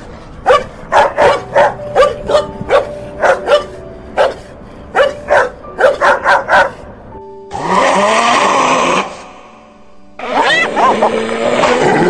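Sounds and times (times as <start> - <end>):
dog barking: 0.4 - 6.8, 10.4 - 11.1.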